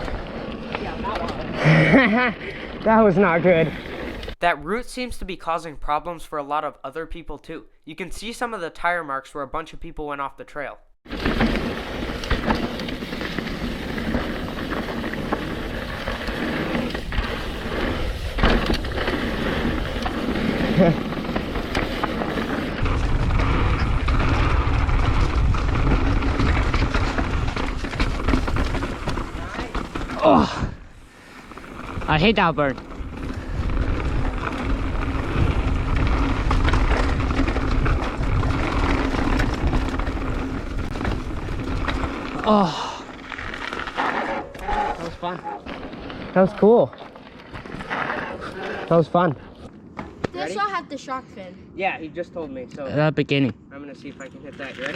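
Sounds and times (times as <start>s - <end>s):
tyre and wind noise: 0.0s - 4.4s, 11.0s - 50.8s
bike knocks and rattles: 11.1s - 30.5s, 31.8s - 42.4s.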